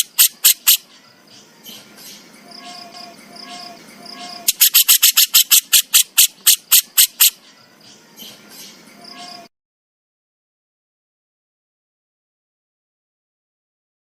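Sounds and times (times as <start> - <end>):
bird harsh rasping call: 0.0 - 9.5.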